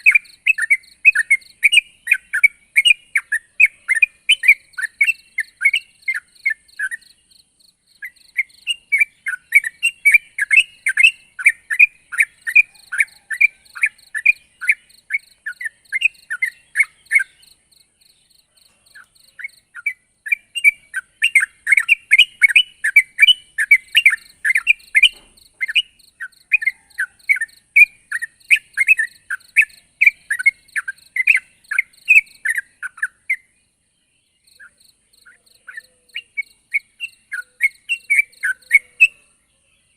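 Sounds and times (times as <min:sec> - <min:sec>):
bird singing chattering whistles: 0:00.0 - 0:33.6, 0:34.4 - 0:39.4.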